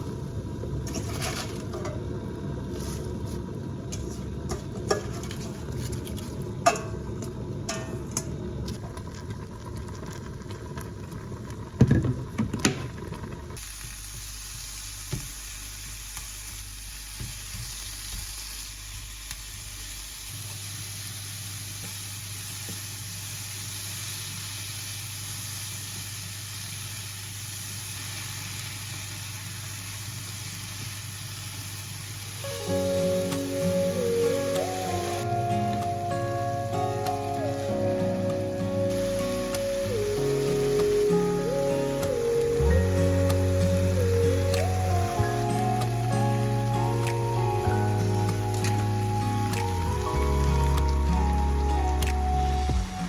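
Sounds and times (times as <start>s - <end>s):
utensils clattering on a pan: 4.5s - 5.6s
food sizzling in a pan: 13.5s - 53.0s.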